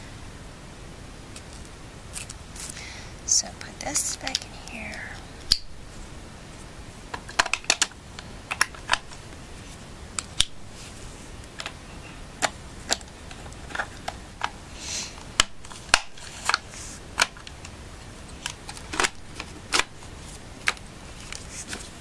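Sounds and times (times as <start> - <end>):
plastic parts clicking into place: 7.1 - 9.2, 15.2 - 19.9.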